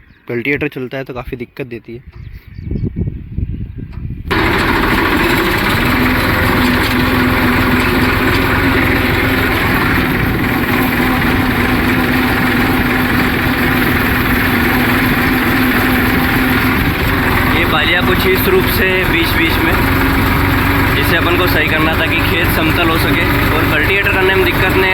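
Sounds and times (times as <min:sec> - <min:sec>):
steady low hum: 0:04.3 - 0:21.3
tractor engine running: 0:04.3 - 0:24.9.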